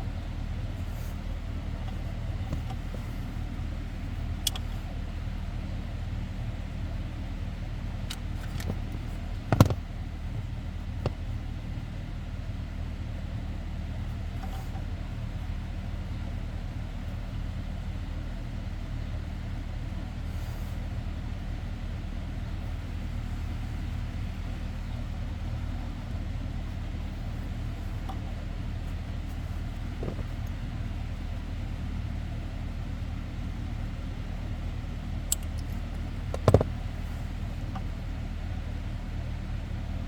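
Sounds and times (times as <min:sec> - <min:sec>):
low mechanical hum: 0:00.0 - 0:40.0
knock: 0:09.5 - 0:09.8, 0:36.4 - 0:36.7.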